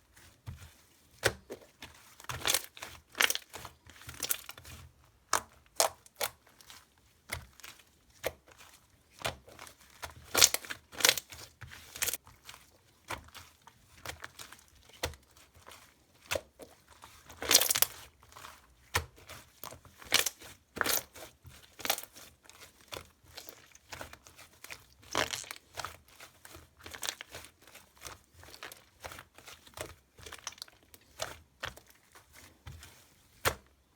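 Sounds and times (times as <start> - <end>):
slime squished by hand: 16.2 - 19.2, 21.7 - 26.0.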